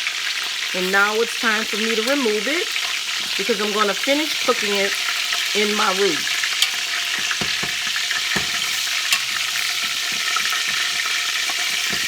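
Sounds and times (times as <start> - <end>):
grease sizzling in a frying pan: 0.0 - 12.0.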